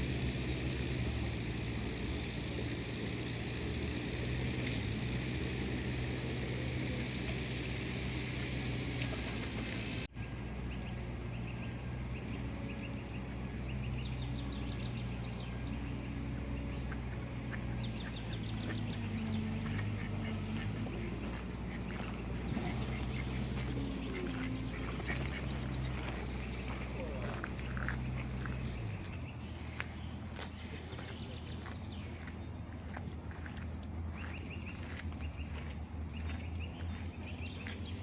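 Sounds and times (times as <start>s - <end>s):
birds rasping calls: 0.0s - 10.1s, 11.3s - 38.0s
steady low hum: 0.0s - 38.0s.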